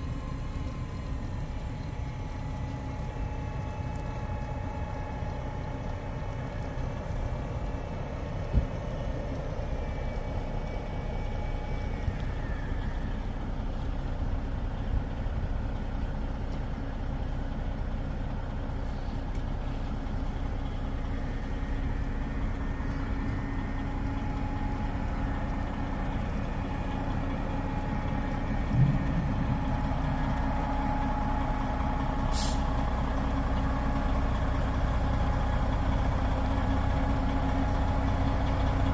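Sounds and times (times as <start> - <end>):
truck engine idling: 0.0 - 38.9
short sharp hiss: 32.3 - 32.7.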